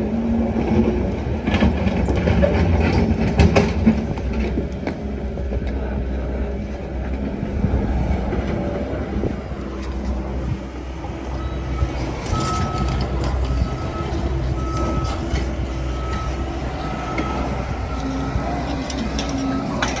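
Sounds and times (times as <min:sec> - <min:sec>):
excavator diesel engine running: 0:00.0 - 0:20.0
back-up alarm beeping: 0:11.3 - 0:20.0.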